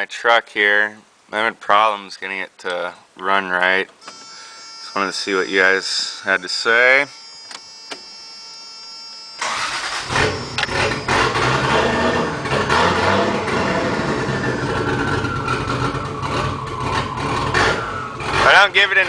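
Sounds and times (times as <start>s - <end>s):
throttle snapping revs: 9.4s - 18.4s
car engine starting and running rough: 9.4s - 19.0s.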